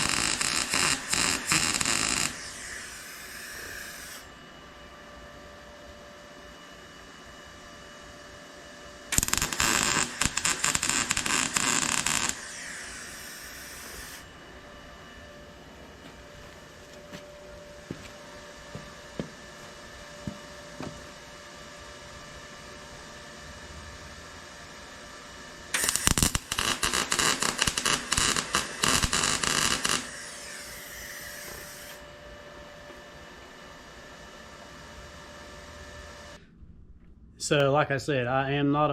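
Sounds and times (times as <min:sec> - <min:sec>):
arc welding crackle: 0:00.0 - 0:04.3, 0:09.1 - 0:14.3, 0:25.7 - 0:32.0
low electrical hum: 0:00.0 - 0:38.9.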